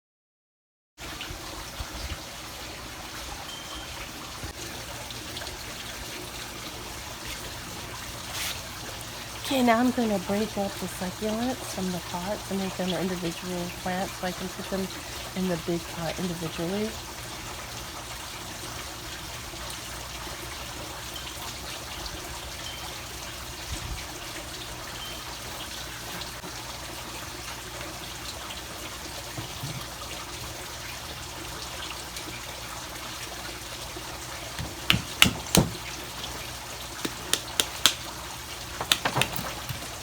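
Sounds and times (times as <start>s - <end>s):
water trickling: 1.0s - 40.0s
sharp clicks and knocks: 38.8s - 39.9s.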